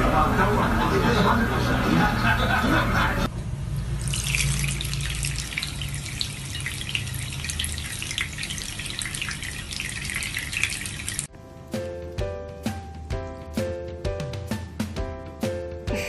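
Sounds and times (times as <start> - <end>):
running splashing water: 3.9 - 11.3.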